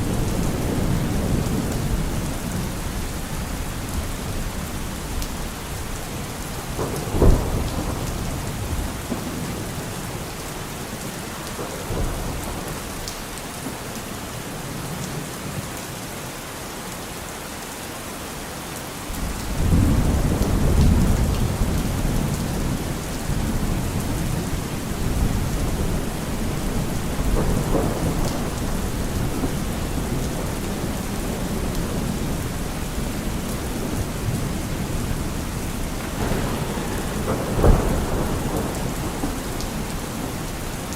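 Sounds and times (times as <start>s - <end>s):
low thunder rumble: 0.0s - 10.3s, 19.2s - 40.9s
steady rain falling: 0.0s - 40.9s
thunder crack: 6.6s - 9.8s, 23.3s - 40.9s.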